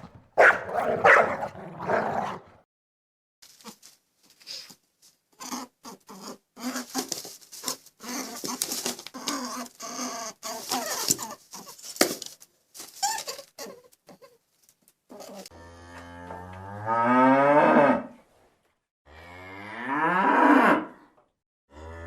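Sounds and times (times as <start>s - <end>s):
scrabbling noises: 0.0s - 2.6s.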